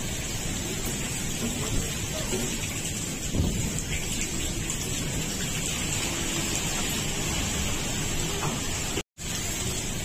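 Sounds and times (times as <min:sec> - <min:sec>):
heavy rain pouring: 0:00.0 - 0:10.0
wind rumbling on microphone: 0:03.2 - 0:04.4.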